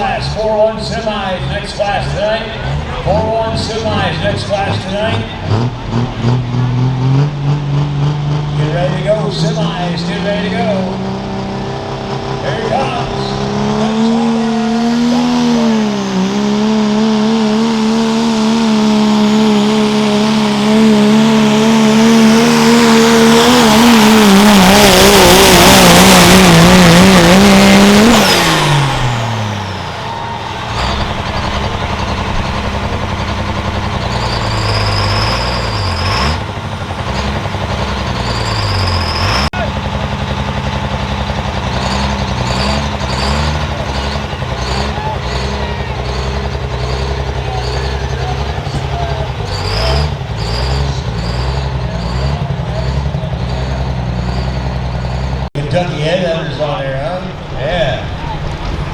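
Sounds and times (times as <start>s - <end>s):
diesel truck engine at full throttle: 0.0s - 58.9s.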